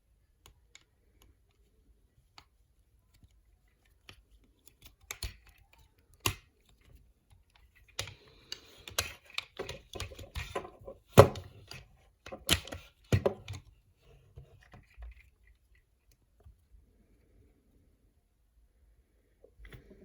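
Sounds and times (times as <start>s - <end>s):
plastic toy clicks and knocks: 3.2s - 13.7s.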